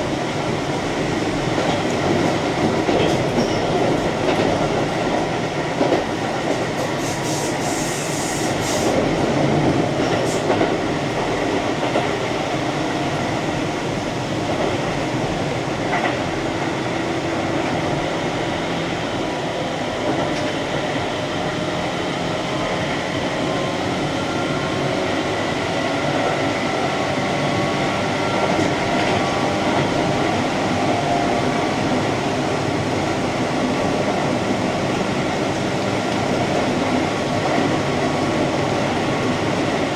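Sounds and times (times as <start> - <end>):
train wheels rumbling on rail: 0.0 - 39.9
brief high hiss: 7.0 - 9.0.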